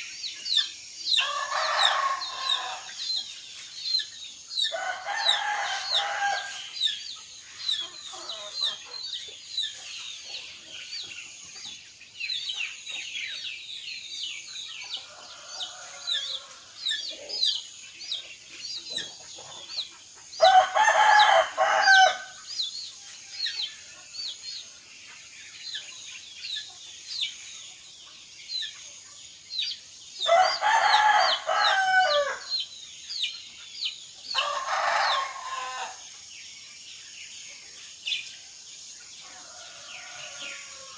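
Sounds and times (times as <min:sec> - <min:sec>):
small birds chirping: 0:00.0 - 0:40.9
rooster crowing: 0:01.2 - 0:03.0, 0:04.7 - 0:06.7, 0:15.0 - 0:16.8, 0:20.4 - 0:22.4, 0:30.2 - 0:32.5, 0:34.3 - 0:36.0, 0:39.3 - 0:40.9.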